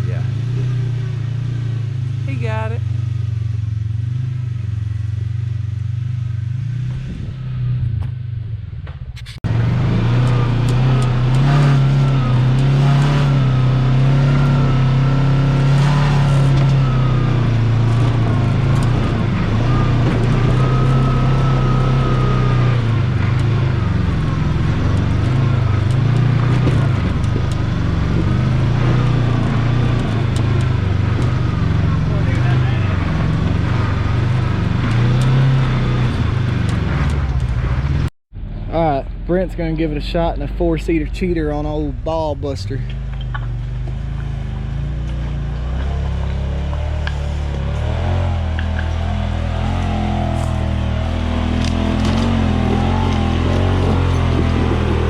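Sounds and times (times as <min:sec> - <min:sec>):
utv engine running under load: 0:00.0 - 0:55.0
knocks and clatters: 0:22.8 - 0:35.5, 0:42.8 - 0:55.0.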